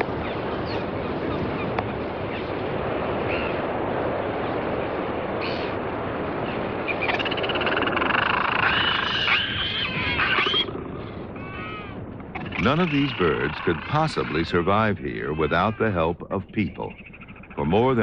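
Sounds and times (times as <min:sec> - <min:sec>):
albatrosses calling: 0:06.5 - 0:18.0.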